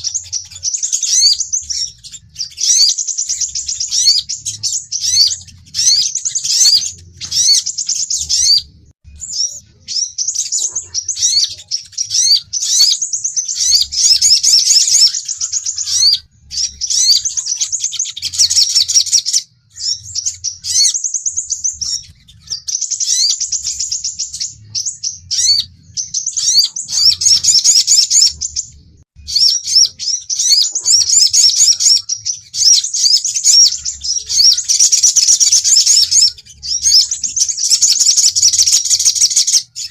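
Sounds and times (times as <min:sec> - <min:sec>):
bird high-pitched chirping: 0:00.0 - 0:39.9.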